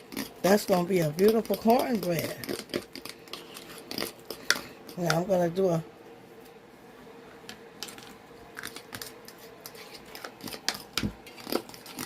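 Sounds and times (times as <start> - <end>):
utensil scraping a bowl: 0.0 - 5.4, 7.8 - 12.0
faint steady hum: 0.0 - 12.0.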